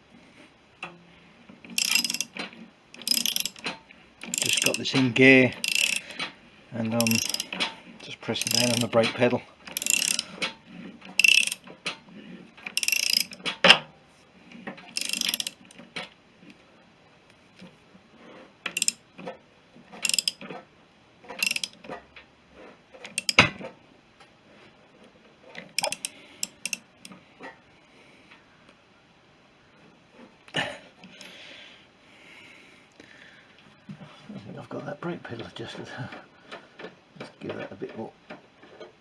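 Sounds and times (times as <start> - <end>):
ratchet wrench clicking: 1.7 - 6.3, 6.9 - 10.5, 11.1 - 11.7, 12.7 - 13.6, 14.9 - 15.8, 18.7 - 19.0, 20.0 - 20.5, 21.4 - 21.8, 23.1 - 23.6, 25.6 - 27.2.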